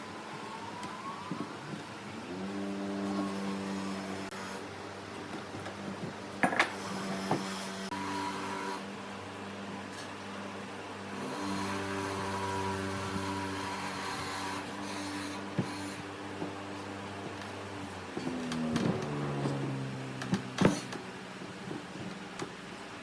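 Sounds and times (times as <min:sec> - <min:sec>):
small electric motor humming: 0:02.3 - 0:04.6, 0:06.7 - 0:08.9, 0:11.1 - 0:16.9.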